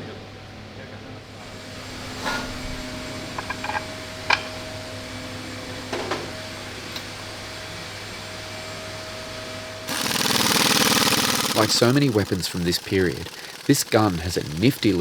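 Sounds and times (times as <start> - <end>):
metal parts clinking: 3.4 - 4.5
steady machine hum: 9.9 - 15.0.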